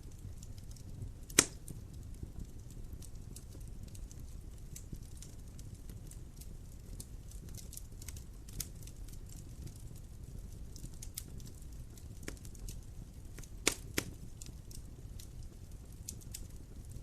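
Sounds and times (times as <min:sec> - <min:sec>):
wood fire crackling: 0:00.0 - 0:17.0
loud sharp pop: 0:01.4 - 0:01.6.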